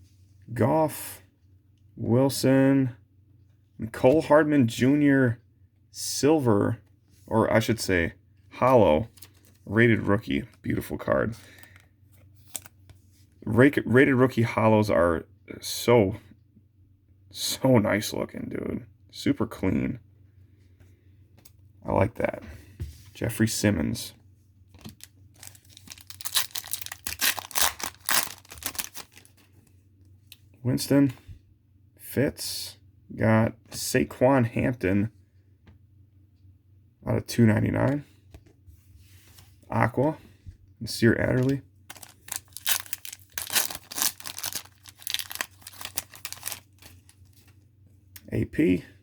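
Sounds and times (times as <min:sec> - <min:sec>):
foil wrapper crinkling and tearing: 0:09.1 - 0:09.7, 0:12.4 - 0:12.7, 0:24.8 - 0:29.4, 0:41.4 - 0:47.5.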